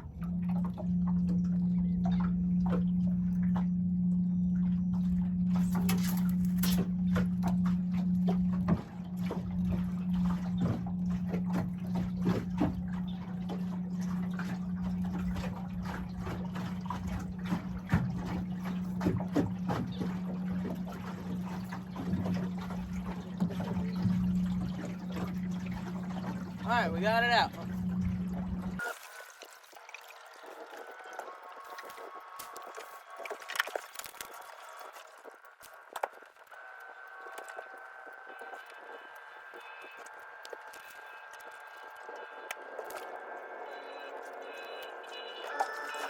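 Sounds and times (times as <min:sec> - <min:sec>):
steady low hum: 0:00.0 - 0:28.8.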